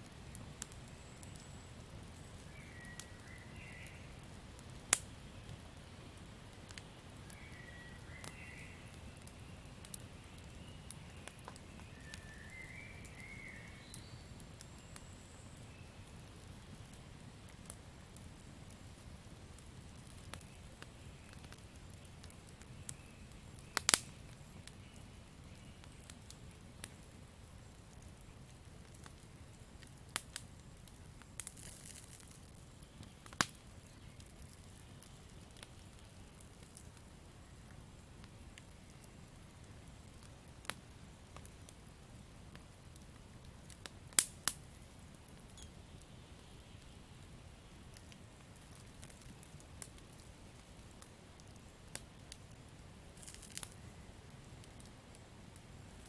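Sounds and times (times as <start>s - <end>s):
campfire crackling: 0.0s - 56.0s
fire hissing: 28.5s - 35.0s, 35.6s - 56.0s.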